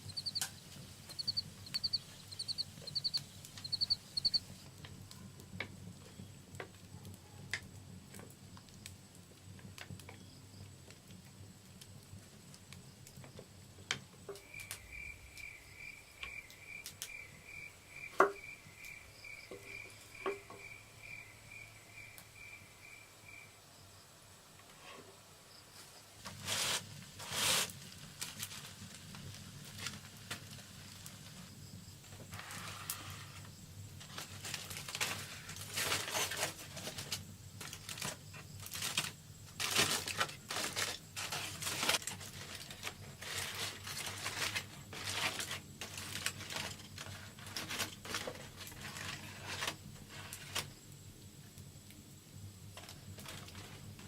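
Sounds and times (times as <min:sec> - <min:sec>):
rustling and crinkling: 0:00.0 - 0:06.8, 0:25.7 - 0:50.8, 0:52.7 - 0:54.0.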